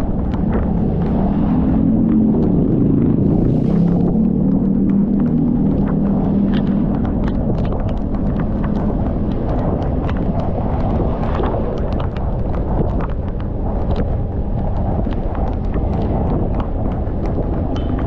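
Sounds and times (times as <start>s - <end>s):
raindrops ticking: 0.0s - 18.0s
wind and road noise rumbling: 0.0s - 18.0s.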